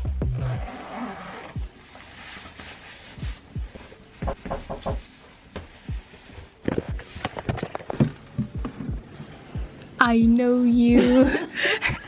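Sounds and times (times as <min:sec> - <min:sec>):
footsteps and handling bumps: 0:04.2 - 0:09.0.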